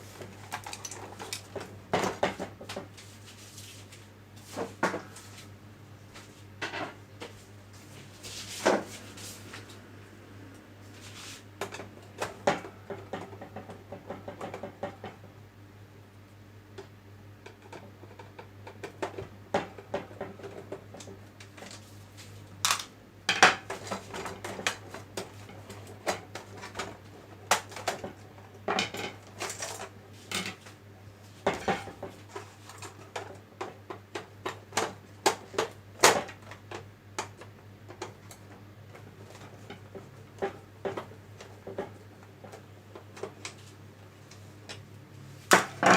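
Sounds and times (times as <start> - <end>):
tools and plastic parts clattering: 0.2 - 3.2, 22.6 - 30.7.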